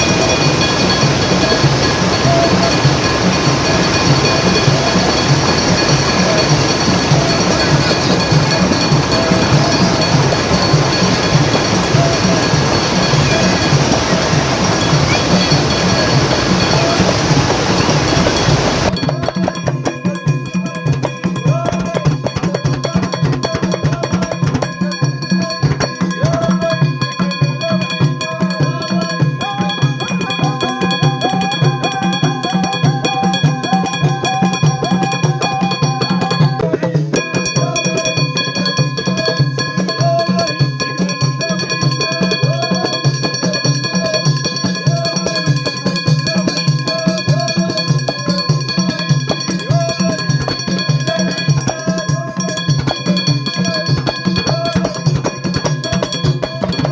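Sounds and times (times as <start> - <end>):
rushing noise: 0.0 - 19.0
music with drum beat: 0.0 - 56.9.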